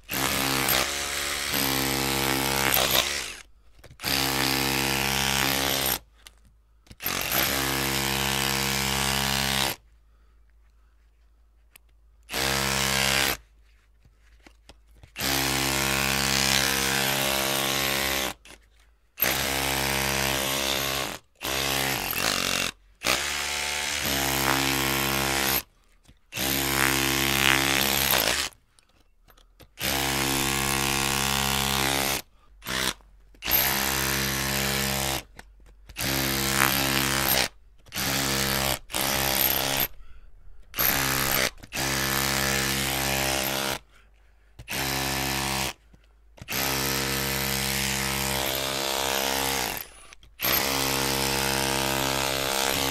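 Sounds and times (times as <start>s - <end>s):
electric drill bursts: 0.1s - 3.4s, 29.8s - 35.2s, 36.0s - 39.9s, 40.8s - 43.8s, 46.5s - 52.9s.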